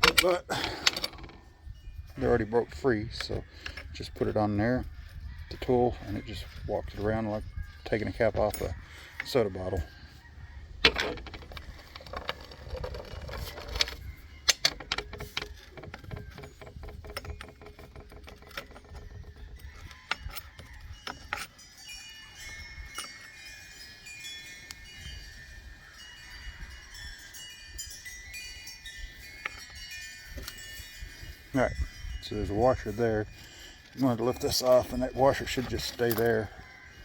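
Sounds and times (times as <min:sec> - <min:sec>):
tools knocking on metal: 0:10.8 - 0:21.5.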